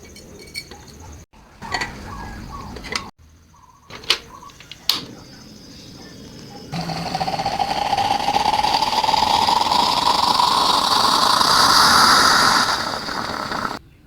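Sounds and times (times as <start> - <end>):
liquid pouring into a vessel: 6.8 - 13.8.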